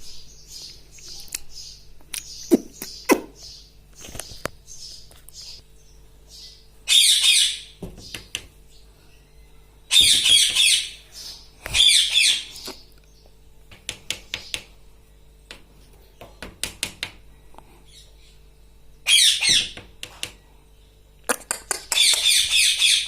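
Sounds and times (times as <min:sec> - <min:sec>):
parrot squawking: 0:06.9 - 0:07.7, 0:09.9 - 0:11.0, 0:11.8 - 0:12.5, 0:19.0 - 0:19.8, 0:21.9 - 0:23.0.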